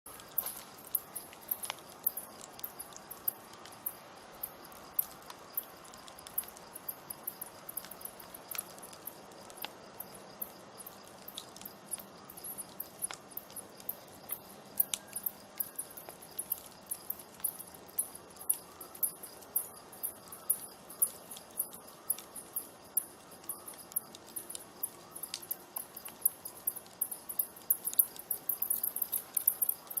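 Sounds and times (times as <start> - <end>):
campfire crackling and popping: 0.1 - 30.0.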